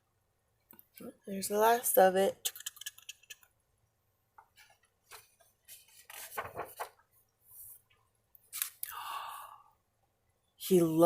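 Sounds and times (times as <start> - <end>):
rustling and light clattering: 4.4 - 8.0.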